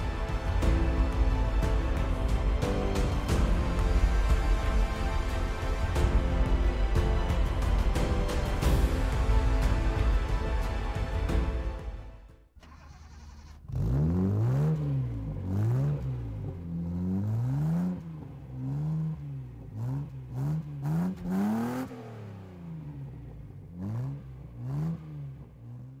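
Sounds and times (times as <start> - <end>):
car engine revving: 12.6 - 26.0.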